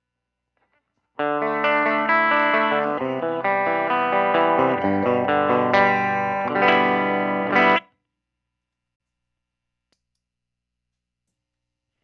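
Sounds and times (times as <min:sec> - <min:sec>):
clean electric guitar: 0:01.2 - 0:07.9.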